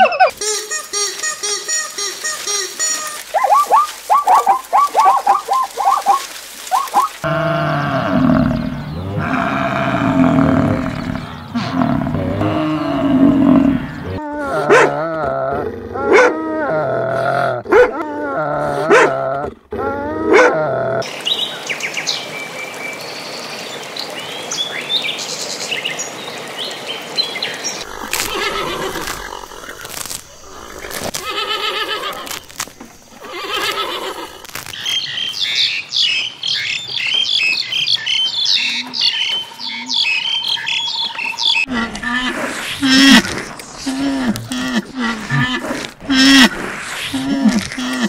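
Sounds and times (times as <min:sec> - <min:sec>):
low drawn-out animal calls: 0:03.2 - 0:21.1
dogs barking: 0:03.3 - 0:07.1, 0:14.6 - 0:15.0, 0:16.0 - 0:16.4, 0:17.7 - 0:18.0, 0:18.9 - 0:19.2, 0:20.3 - 0:20.6.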